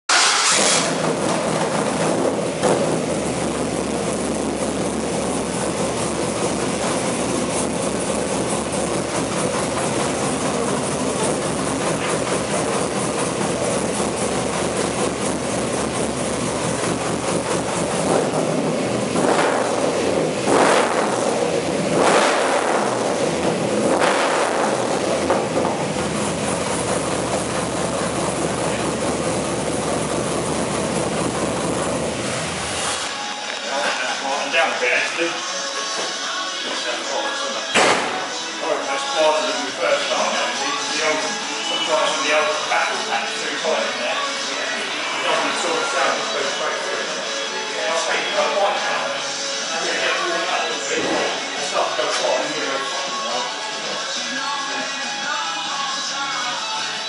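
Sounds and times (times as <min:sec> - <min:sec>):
car engine running loud: 0:00.1 - 0:33.1.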